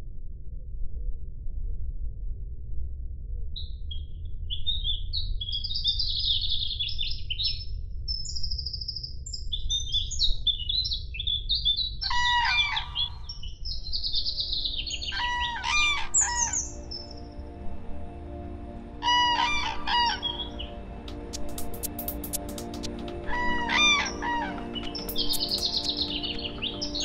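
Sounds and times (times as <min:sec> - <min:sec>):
songbird chirping and trilling: 0:03.9 - 0:17.4, 0:23.3 - 0:27.0
harsh bird calls: 0:12.0 - 0:16.8.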